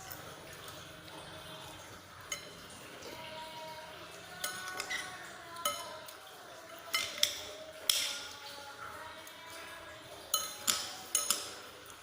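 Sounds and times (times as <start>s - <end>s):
spoon clinking against bowl: 2.3s - 2.8s, 4.3s - 8.4s, 10.2s - 11.7s.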